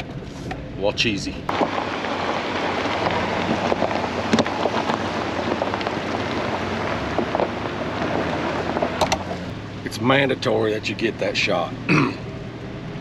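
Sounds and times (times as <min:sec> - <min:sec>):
tyres rolling on gravel: 0:00.1 - 0:11.7.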